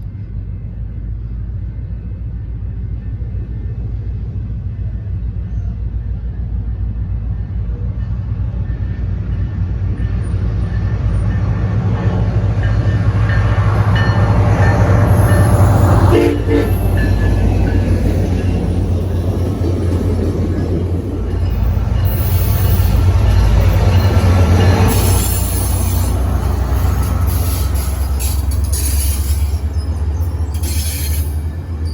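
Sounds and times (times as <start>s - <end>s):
diesel train engine rumble: 0.0s - 31.9s
brief high squeal: 27.4s - 31.9s.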